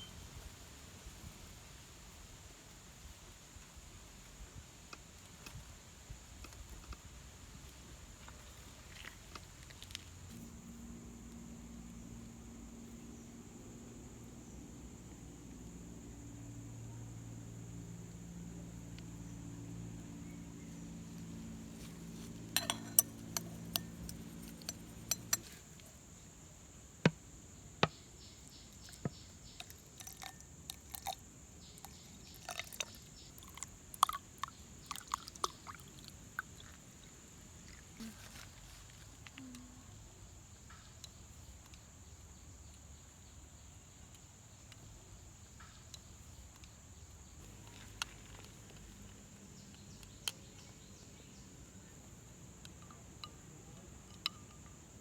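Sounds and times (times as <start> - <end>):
sharp clicks and clinks: 22.2 - 25.9, 54.1 - 54.8.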